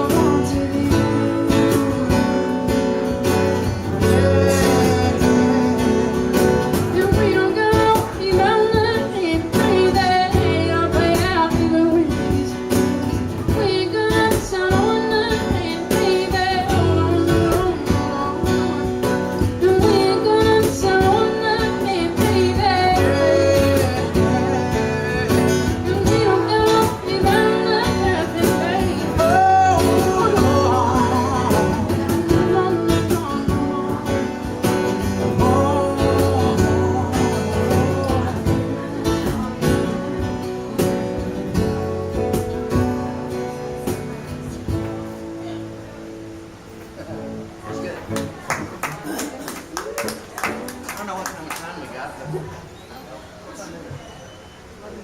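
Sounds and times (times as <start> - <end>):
person singing: 0.0 - 42.6
strummed acoustic guitar: 0.0 - 50.8
cajon beat: 0.0 - 52.8.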